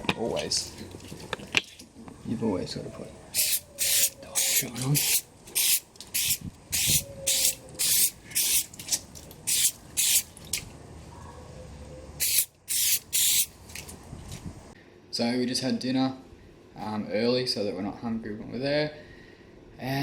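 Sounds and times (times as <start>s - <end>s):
spray bottle squirts: 3.4s - 10.4s, 12.2s - 13.5s.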